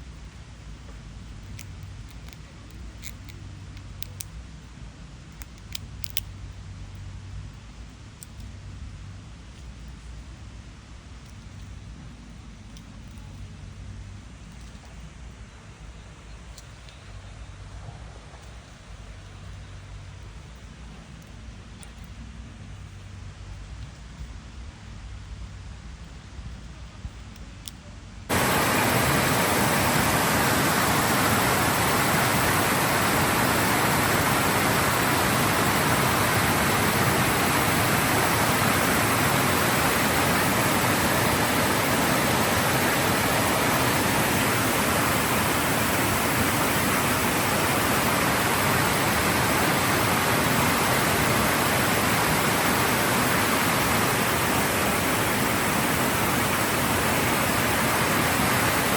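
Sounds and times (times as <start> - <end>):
loud steady rushing noise: 28.3 - 58.9.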